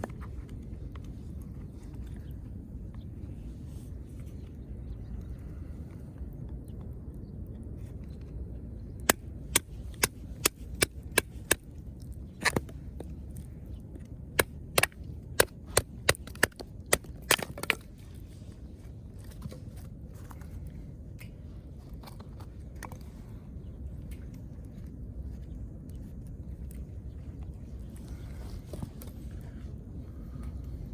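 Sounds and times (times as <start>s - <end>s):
dry wood cracking: 8.8s - 25.0s.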